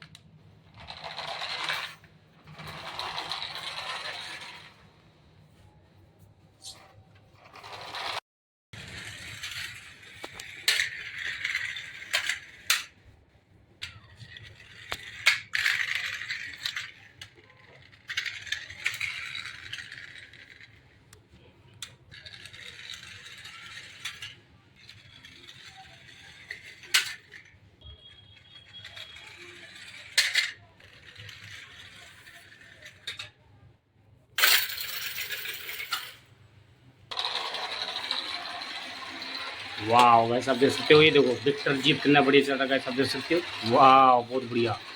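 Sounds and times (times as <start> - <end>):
toy car motor whirring: 22.1 - 33.3, 37.1 - 44.9.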